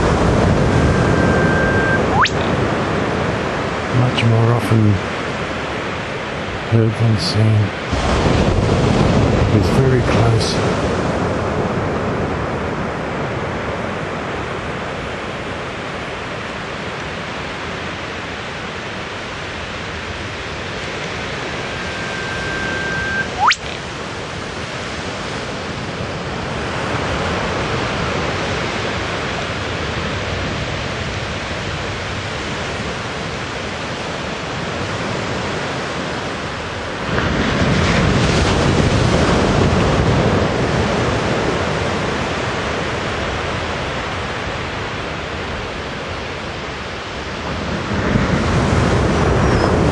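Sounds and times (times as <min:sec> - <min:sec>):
steady rushing noise: 0:00.0 - 0:03.0, 0:19.4 - 0:24.0
bird whistle ending in whip-crack: 0:00.8 - 0:02.6, 0:21.7 - 0:23.8.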